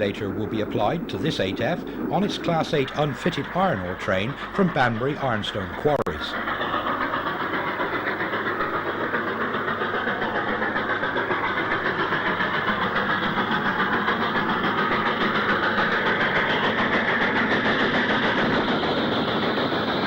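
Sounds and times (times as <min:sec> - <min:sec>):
steam locomotive exhaust beats: 0:00.0 - 0:20.0.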